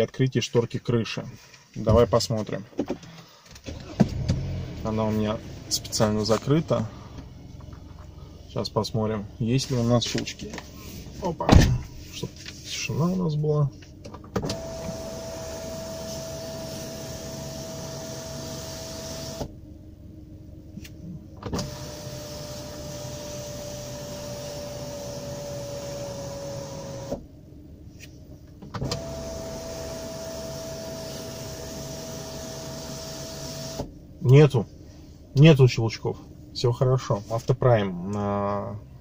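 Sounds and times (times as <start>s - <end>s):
sunroof shade motor whining: 14.3s - 19.6s, 21.4s - 27.2s.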